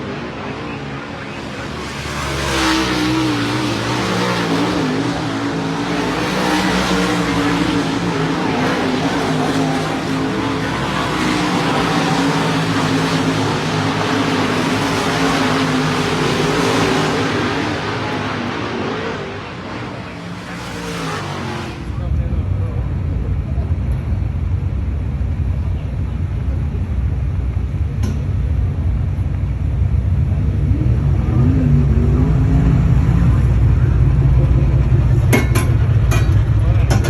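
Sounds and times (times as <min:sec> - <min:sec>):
race car engines at high revs: 0:00.0 - 0:37.0.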